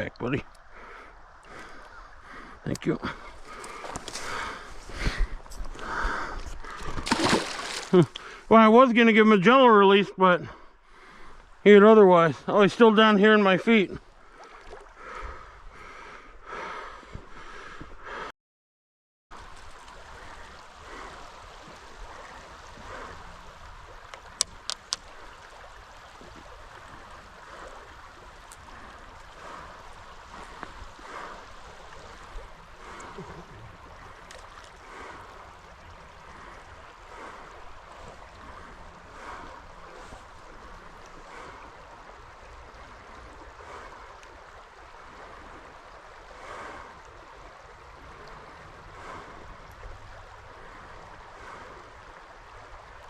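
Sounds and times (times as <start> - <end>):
creek water running: 0.0 - 18.2, 19.3 - 53.0
sharp clicks: 24.4 - 25.0.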